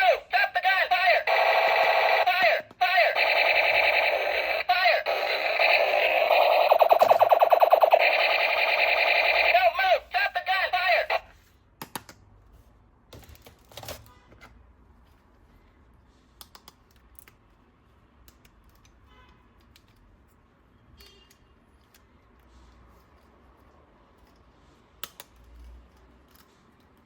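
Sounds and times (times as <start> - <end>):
plastic toy parts clicking: 25.0 - 26.5.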